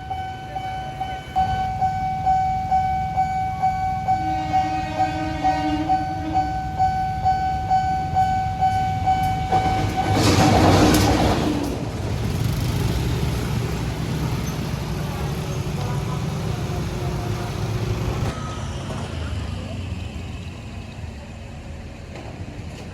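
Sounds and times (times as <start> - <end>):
level crossing bell ringing: 0.0 - 10.3.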